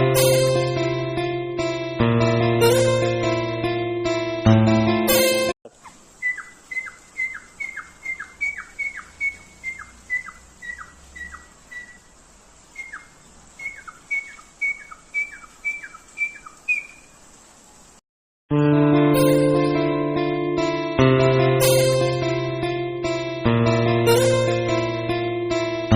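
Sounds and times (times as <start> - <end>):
bird whistled calls: 5.8 - 17.2.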